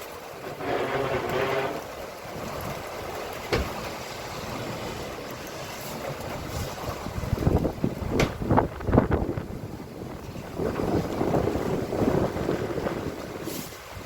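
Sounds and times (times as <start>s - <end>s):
rain: 0.0s - 14.0s
strong wind on microphone: 6.4s - 14.0s.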